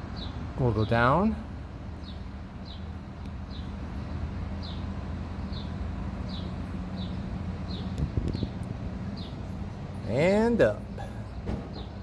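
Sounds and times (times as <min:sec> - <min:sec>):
low mechanical hum: 0:00.0 - 0:12.0
bird chirping: 0:00.1 - 0:01.1, 0:01.9 - 0:09.9.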